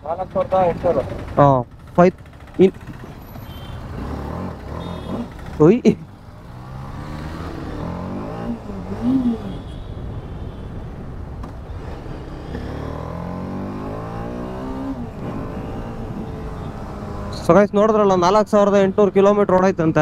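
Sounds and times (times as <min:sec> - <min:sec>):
motorcycle engine accelerating: 0:00.3 - 0:09.6, 0:11.4 - 0:17.6.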